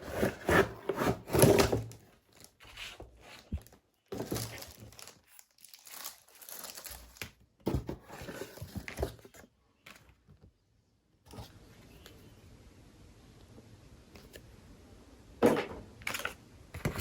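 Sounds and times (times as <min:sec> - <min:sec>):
packaging crinkling and tearing: 0:01.4 - 0:07.4.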